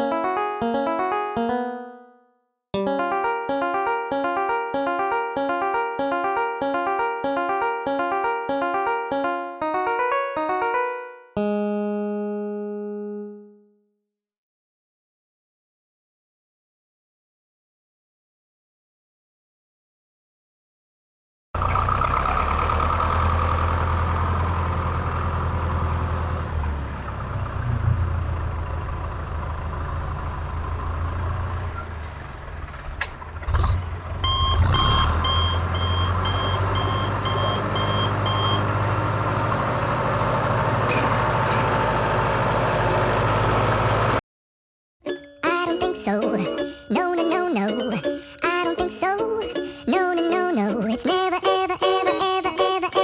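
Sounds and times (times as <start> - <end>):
reversing beeps: 34.2 - 38.6
truck engine running: 34.2 - 44.2.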